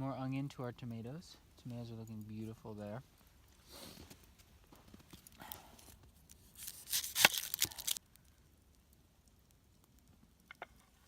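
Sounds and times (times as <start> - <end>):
onion scraping and rustling: 5.8 - 8.0.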